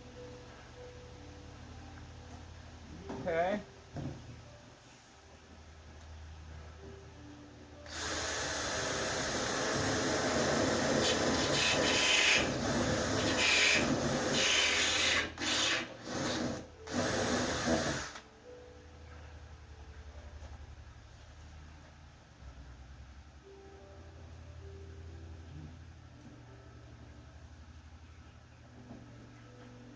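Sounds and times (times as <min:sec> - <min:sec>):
power drill bit grinding: 0:07.9 - 0:18.2.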